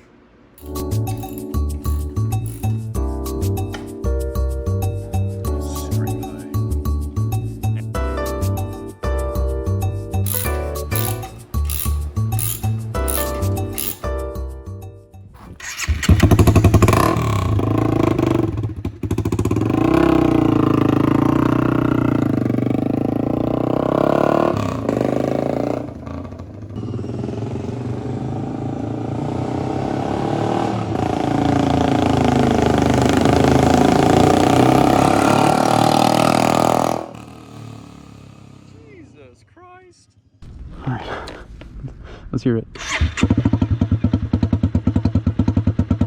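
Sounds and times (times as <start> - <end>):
motorcycle engine running: 15.6 - 29.2, 30.8 - 38.7, 43.0 - 46.0.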